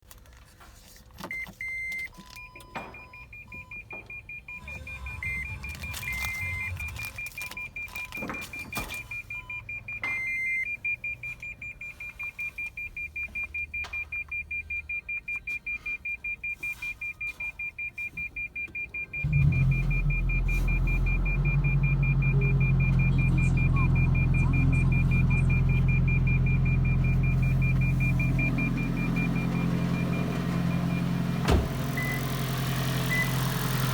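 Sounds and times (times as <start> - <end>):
dashboard chimes: 2.5 - 33.9
fast high beeps: 3.4 - 11.1, 18.3 - 31.2
petrol engine starting and running: 4.4 - 9.8, 18.6 - 33.9.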